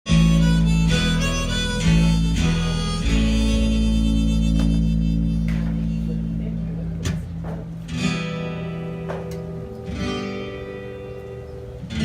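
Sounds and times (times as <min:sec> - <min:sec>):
harmonica playing chords: 0:00.1 - 0:06.9
low bass note: 0:00.1 - 0:07.3.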